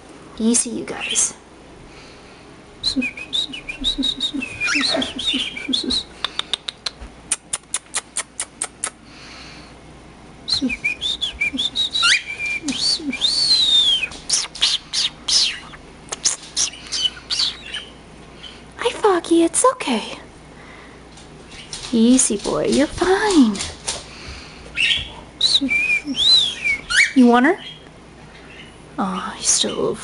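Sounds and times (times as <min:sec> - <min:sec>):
cockatiel whistling: 0:03.0 - 0:06.1, 0:10.6 - 0:17.9, 0:24.8 - 0:27.2
cockatiels chirping: 0:13.4 - 0:18.6.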